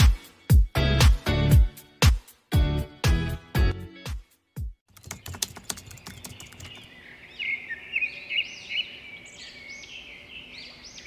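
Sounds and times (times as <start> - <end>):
music: 0.0 - 4.8
sharp clicks: 4.9 - 6.9
birds chirping: 4.9 - 11.0
faint outdoor background noise: 4.9 - 11.0.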